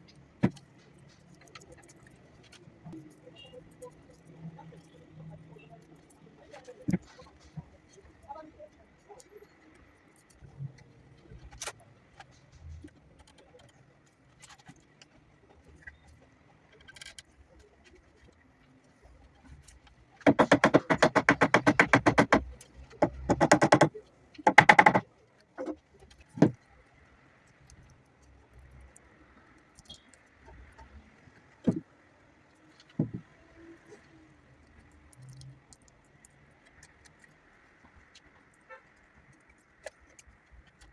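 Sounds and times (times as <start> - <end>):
woodworking tool rattling: 20.2 - 25.0.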